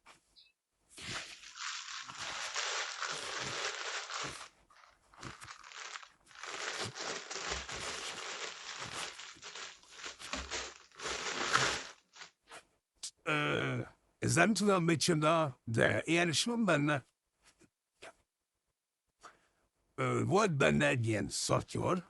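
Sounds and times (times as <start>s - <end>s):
crinkly packaging crumpling: 1.0s - 12.4s.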